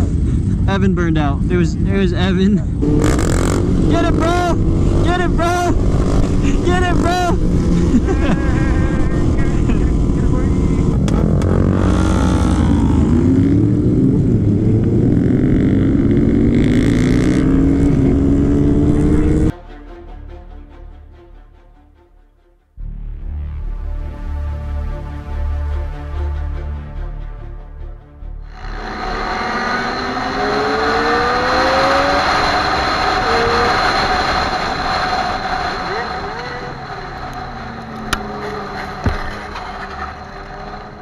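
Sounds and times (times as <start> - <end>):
motorcycle engine revving high: 2.7 - 19.5, 28.4 - 41.0.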